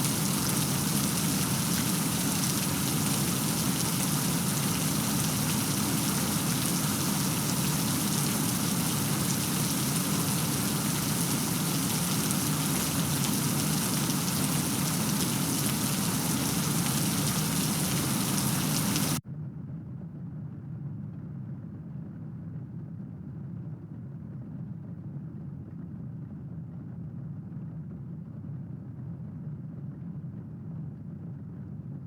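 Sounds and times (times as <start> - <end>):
heavy rain hissing: 0.0 - 19.2.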